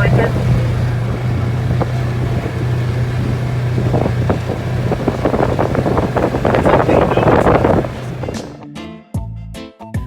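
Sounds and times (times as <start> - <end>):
wind buffeting microphone: 0.0 - 8.5
vehicle engine droning: 0.0 - 8.6.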